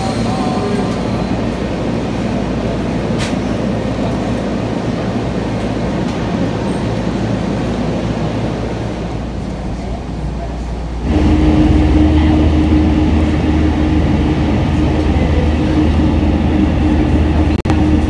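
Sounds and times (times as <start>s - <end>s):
electric train hum and rumble: 0.0s - 18.0s.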